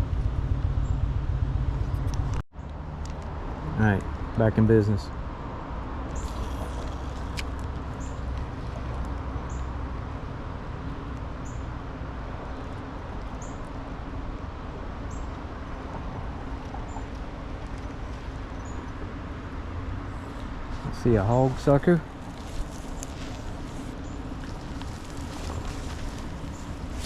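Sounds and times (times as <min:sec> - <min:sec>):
low background rumble: 0:00.0 - 0:02.4.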